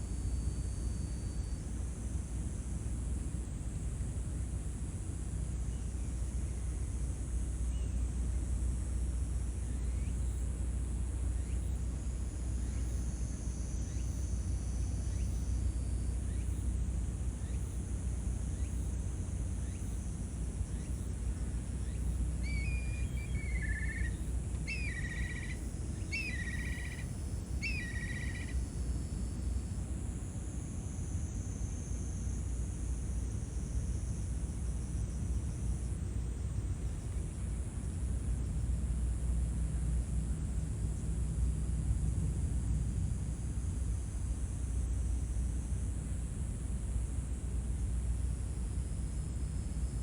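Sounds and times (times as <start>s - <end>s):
low outdoor rumble: 7.2s - 50.0s
faint chirps: 21.8s - 28.8s
bird call swooping down: 22.5s - 27.0s, 27.6s - 28.5s.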